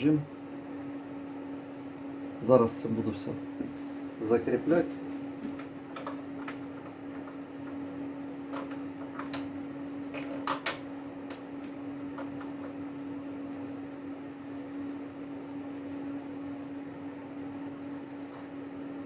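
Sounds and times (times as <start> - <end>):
steady machine hum: 0.0 - 19.0
metal clinks and knocks: 18.1 - 18.6.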